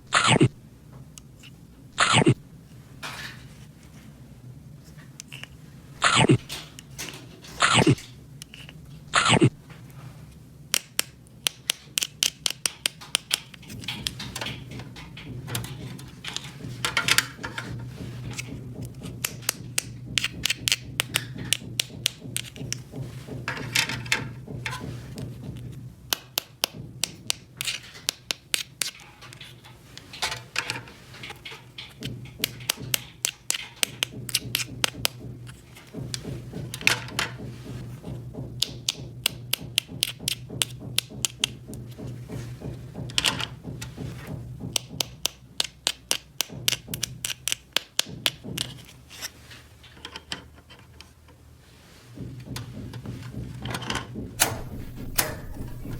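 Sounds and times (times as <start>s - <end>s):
plastic toy pieces clicking: 10.7s - 17.7s, 18.3s - 22.8s, 25.6s - 36.0s, 38.6s - 41.6s, 44.7s - 49.0s
rustling: 12.9s - 26.2s, 26.8s - 38.4s, 46.6s - 55.9s.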